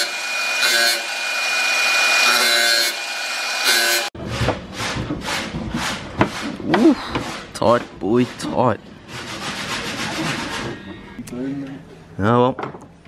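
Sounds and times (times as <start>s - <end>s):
power tool grinding: 0.0s - 4.1s.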